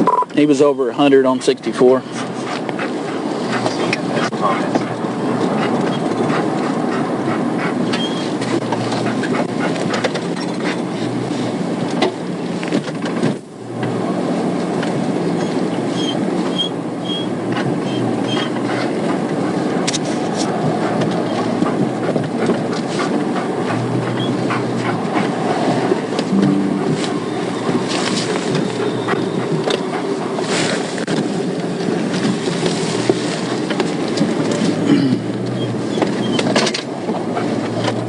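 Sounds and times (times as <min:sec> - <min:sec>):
car road and engine noise: 0:00.0 - 0:38.0
faint short high beeps: 0:26.3 - 0:27.8.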